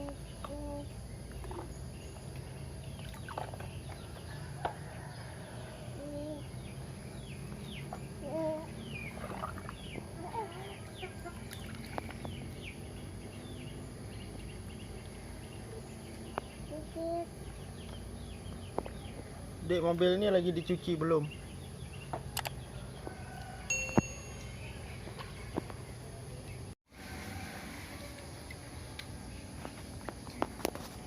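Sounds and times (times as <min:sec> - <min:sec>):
low clucking bird calls: 0:00.0 - 0:19.5
insects humming: 0:00.0 - 0:31.0.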